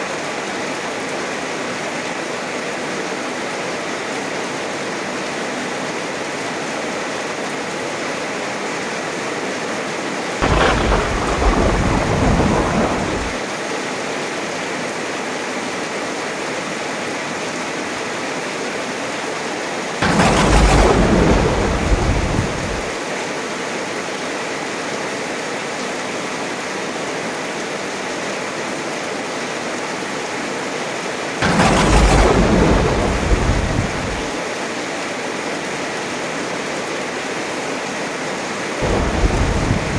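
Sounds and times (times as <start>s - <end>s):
heavy rain: 10.3s - 13.5s, 18.2s - 24.1s, 26.4s - 39.9s
thunderclaps rumbling: 10.4s - 13.4s, 20.0s - 23.0s, 31.4s - 34.4s, 38.8s - 39.9s.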